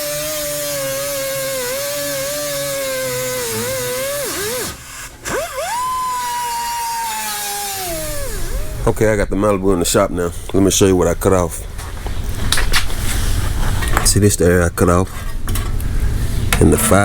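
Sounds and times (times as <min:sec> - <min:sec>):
cutoff wheel whining: 0:00.0 - 0:10.7.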